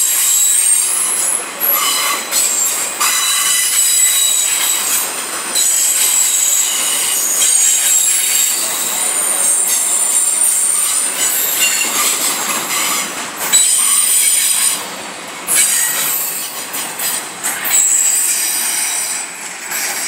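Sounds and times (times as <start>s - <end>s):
train wheels squealing: 0.0s - 14.9s, 15.5s - 20.0s
freight train rolling past: 0.0s - 20.0s
sharp knocks from train cars: 1.7s - 8.6s, 9.4s - 20.0s.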